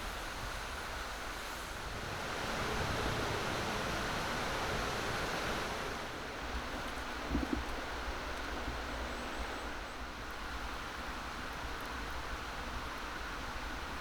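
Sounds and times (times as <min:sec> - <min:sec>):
mountain stream rushing: 0:01.7 - 0:06.5.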